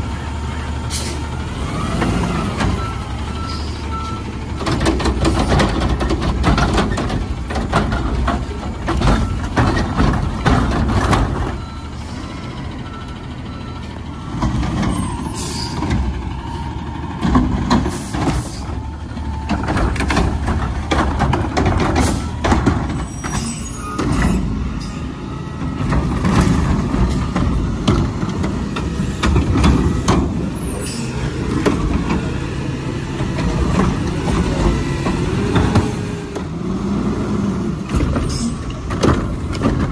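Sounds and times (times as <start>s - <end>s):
garbage truck diesel engine: 0.0s - 39.9s
air brake hissing: 0.9s - 1.2s
reversing beeps: 2.3s - 4.3s, 11.5s - 15.8s
knocks and bangs: 19.5s - 23.1s.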